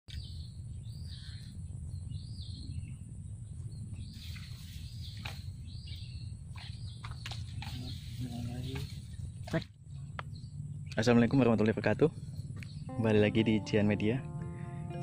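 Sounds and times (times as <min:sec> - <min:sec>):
birds chirping: 0:00.1 - 0:15.0
low rumble: 0:09.0 - 0:15.0.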